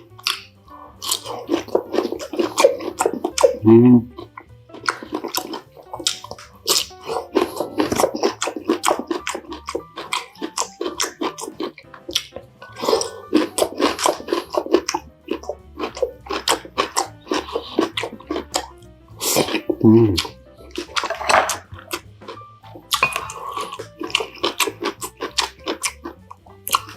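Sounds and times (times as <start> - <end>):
chewing and crunching crispy food: 0.0 - 26.9
wet mouth sounds: 0.0 - 26.9.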